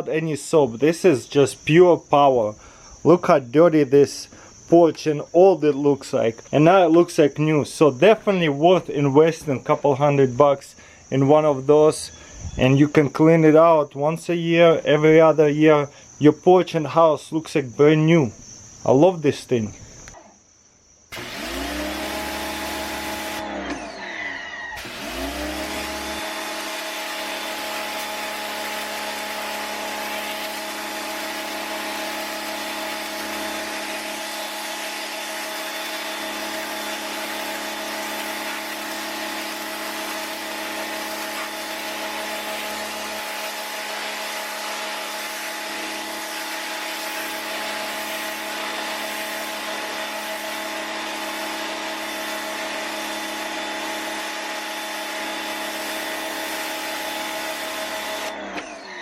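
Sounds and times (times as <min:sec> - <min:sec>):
pressure washer motor hum: 0:21.1 - 0:24.0, 0:24.8 - 0:59.0
water spray hissing: 0:25.2 - 0:58.3.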